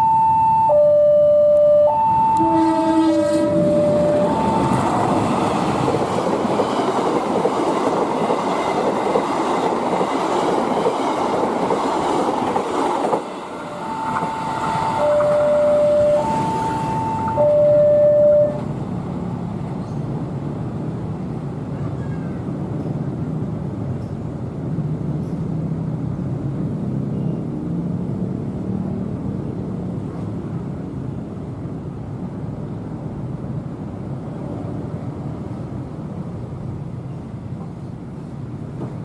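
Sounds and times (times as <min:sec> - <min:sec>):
locomotive horn: 0:00.0 - 0:05.1, 0:13.8 - 0:18.6
train rumbling: 0:02.1 - 0:26.8, 0:29.1 - 0:39.0.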